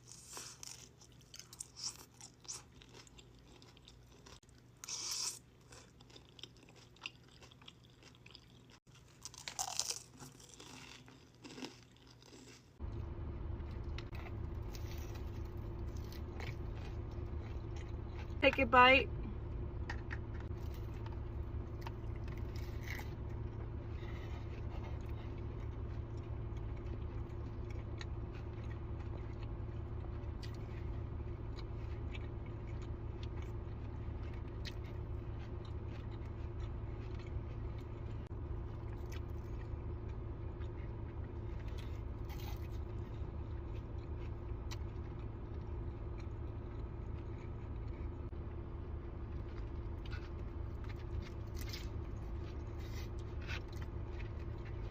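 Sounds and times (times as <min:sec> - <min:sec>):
person chewing food: 0:00.0 - 0:13.0, 0:13.6 - 0:18.4, 0:19.8 - 0:54.9
steady low hum: 0:00.0 - 0:54.9.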